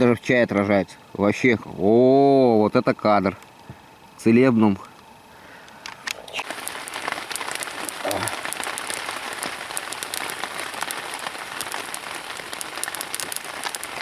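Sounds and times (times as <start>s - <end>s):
rain pattering: 6.4s - 14.0s.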